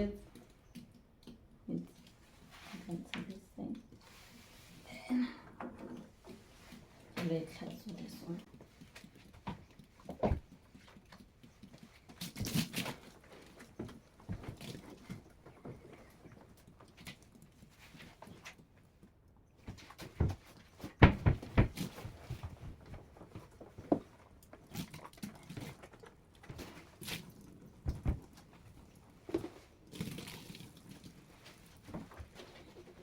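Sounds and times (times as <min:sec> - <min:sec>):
knocks taps and thuds: 0:19.6 - 0:24.3.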